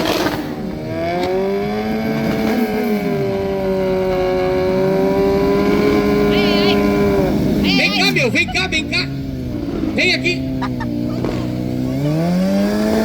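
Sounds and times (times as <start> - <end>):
motorcycle engine high revs: 0.0 - 13.0.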